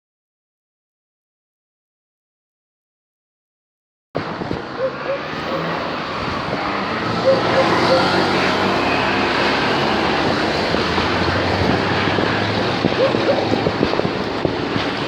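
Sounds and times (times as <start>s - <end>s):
wind noise on microphone: 4.2s - 15.0s.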